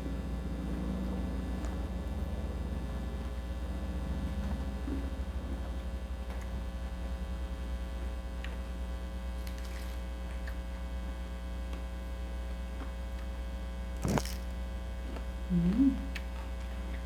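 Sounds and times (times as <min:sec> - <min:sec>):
electrical mains hum: 0:00.0 - 0:17.0
crunchy chewing clicks: 0:12.7 - 0:17.0.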